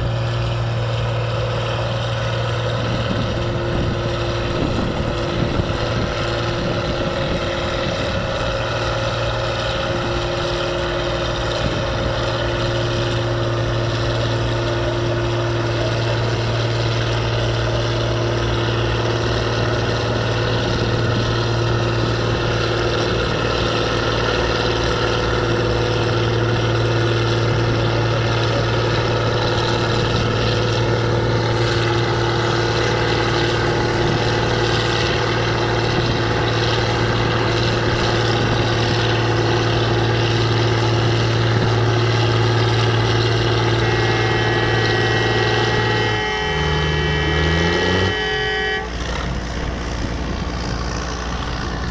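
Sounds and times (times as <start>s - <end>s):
tractor engine running: 0.0s - 51.9s
steady horn-like tone: 41.2s - 49.9s.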